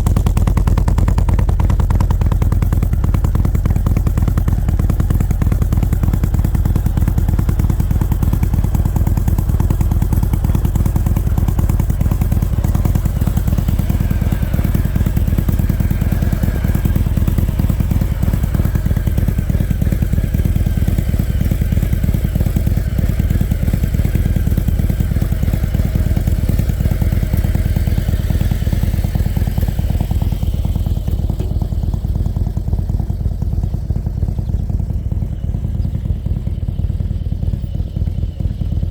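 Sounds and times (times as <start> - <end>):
motorcycle exhaust note: 0.0 - 38.9.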